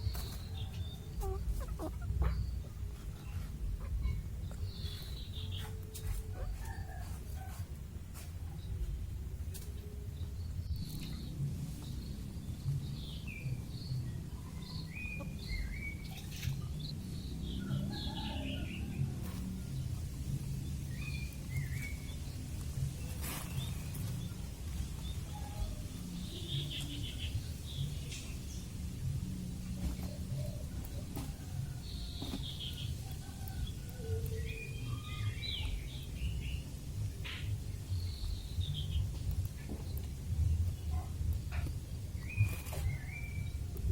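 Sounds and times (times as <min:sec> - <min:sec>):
chicks peeping: 0:00.0 - 0:08.2, 0:29.7 - 0:37.4
chickens chirping and peeping: 0:00.0 - 0:43.9
steady low rumble: 0:07.2 - 0:43.9.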